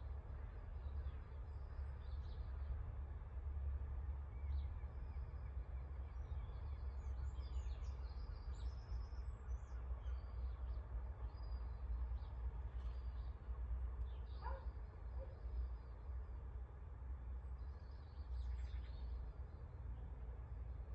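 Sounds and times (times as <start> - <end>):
songbirds chirping and trilling: 4.2 - 16.4, 17.0 - 20.6.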